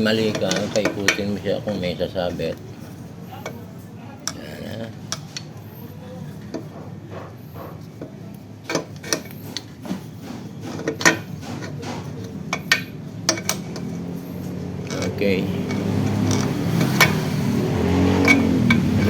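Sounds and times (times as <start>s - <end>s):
metal parts clinking: 0.0s - 1.9s, 10.8s - 17.5s, 18.2s - 19.0s.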